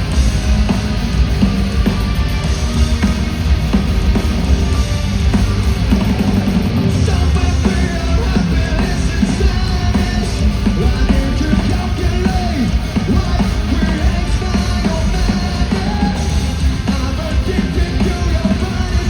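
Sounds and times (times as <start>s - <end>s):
hard rock band playing: 0.0s - 19.0s
shouted lead vocal: 6.8s - 19.0s.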